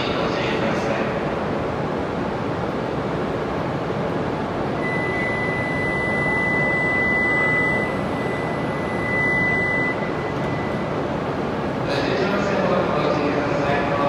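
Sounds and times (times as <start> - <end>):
train rushing noise: 0.0 - 5.0
high-pitched whine: 2.2 - 14.0.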